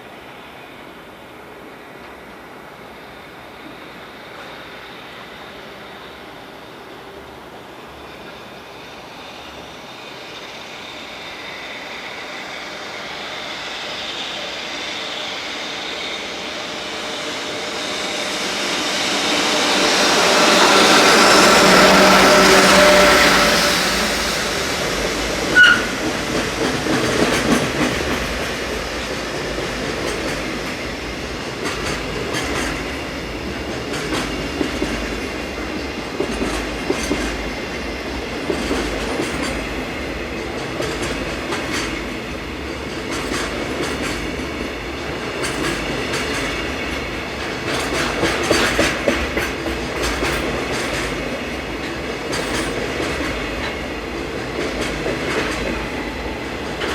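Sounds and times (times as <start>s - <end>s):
high wheel squeal: 9.0s - 28.2s
train wheels clattering over joints: 16.2s - 56.9s.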